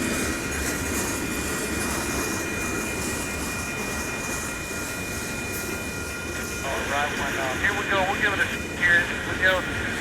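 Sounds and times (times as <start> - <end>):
train cars rolling on rails: 0.0 - 10.0
crossing bell ringing: 2.2 - 8.0.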